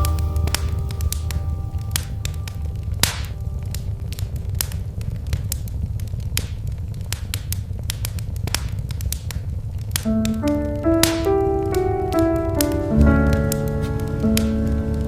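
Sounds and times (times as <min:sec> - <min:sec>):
piano notes: 0:00.0 - 0:05.1, 0:10.0 - 0:15.0
wood fire crackling: 0:00.0 - 0:15.0.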